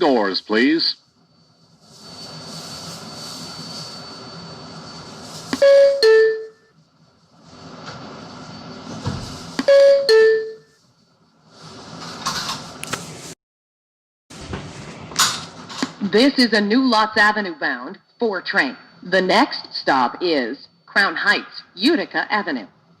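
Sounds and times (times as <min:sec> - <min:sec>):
subway train noise: 0:00.0 - 0:13.4
two-note door chime: 0:09.7 - 0:10.7.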